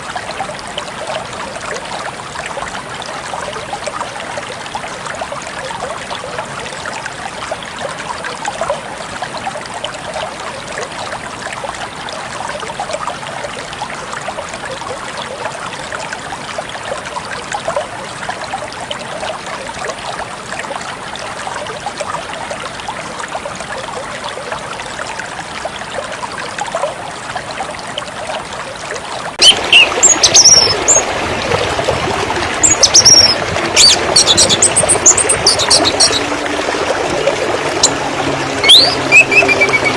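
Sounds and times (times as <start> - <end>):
stream trickling: 0.0 - 39.9
water rushing: 0.0 - 39.9
birds chirping: 29.4 - 31.0, 32.6 - 36.3, 38.6 - 39.9.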